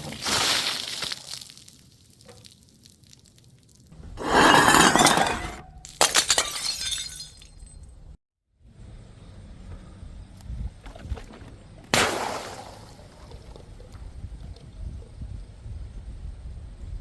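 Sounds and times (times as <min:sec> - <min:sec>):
glass bottles shattering: 0:04.2 - 0:07.9
glass shards tinkling: 0:04.4 - 0:05.6, 0:06.2 - 0:07.9.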